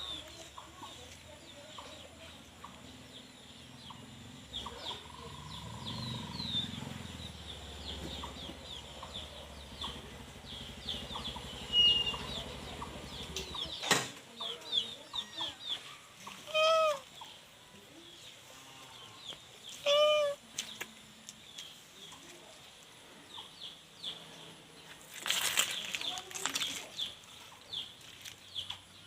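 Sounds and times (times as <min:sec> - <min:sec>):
kitten meowing: 0:16.4 - 0:17.1, 0:19.8 - 0:20.4.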